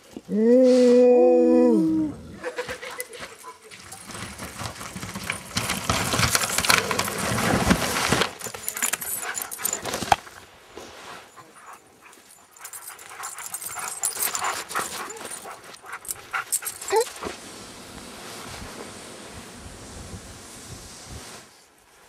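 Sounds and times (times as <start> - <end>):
sled dogs barking: 11.4 - 17.4.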